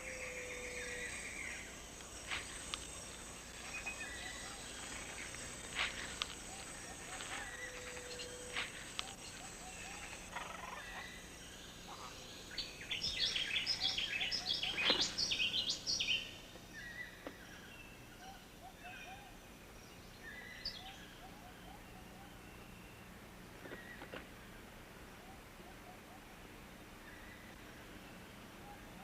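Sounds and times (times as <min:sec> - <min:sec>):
birds calling: 0:00.0 - 0:19.4.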